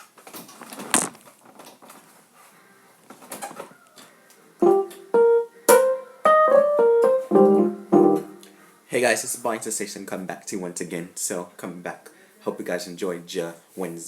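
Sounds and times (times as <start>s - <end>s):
piano notes and chords: 4.6s - 8.5s.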